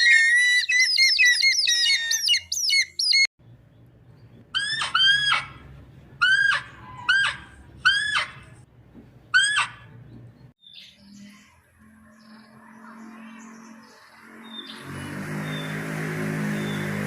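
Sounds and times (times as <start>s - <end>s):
bird squawking: 0.0s - 3.3s, 4.6s - 5.6s, 6.2s - 8.6s, 9.3s - 10.0s
many birds chirping: 0.0s - 5.4s, 9.5s - 17.0s.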